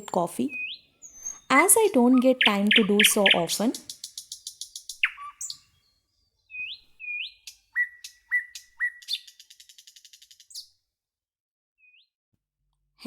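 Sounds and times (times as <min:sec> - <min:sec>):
fast chattering bird trill: 0:00.4 - 0:05.6, 0:06.6 - 0:10.6
rising bird calls: 0:00.5 - 0:01.6, 0:02.2 - 0:10.7
bird whistles sliding upward: 0:00.6 - 0:01.5, 0:06.5 - 0:10.6.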